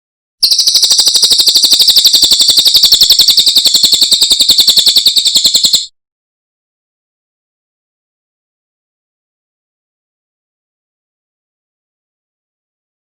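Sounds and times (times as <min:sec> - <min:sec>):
bird singing rapid high trill: 0:00.4 - 0:05.9.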